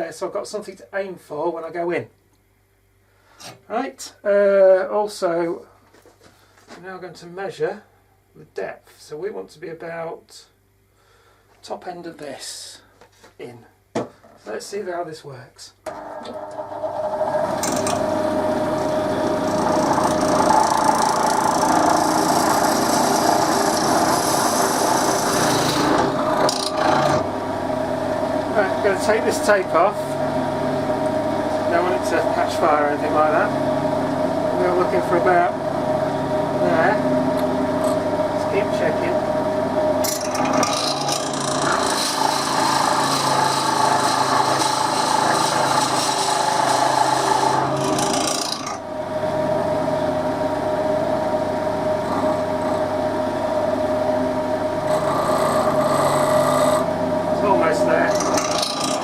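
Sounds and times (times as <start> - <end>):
drill bit grinding into wood: 15.9 - 27.3, 40.0 - 48.8, 52.0 - 52.8, 54.9 - 59.0
lathe motor hum: 15.9 - 59.0.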